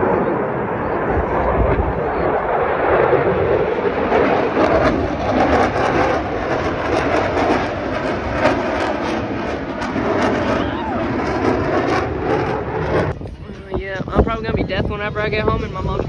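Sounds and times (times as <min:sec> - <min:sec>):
aircraft roaring in flight: 0:00.0 - 0:16.0.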